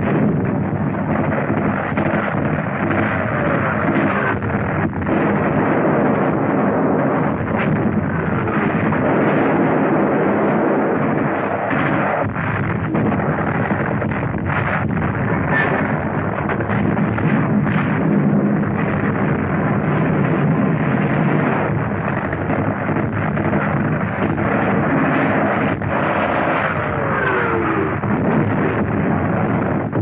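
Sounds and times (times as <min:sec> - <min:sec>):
artillery fire and explosions: 0:00.0 - 0:30.0
falling whine: 0:00.0 - 0:30.0.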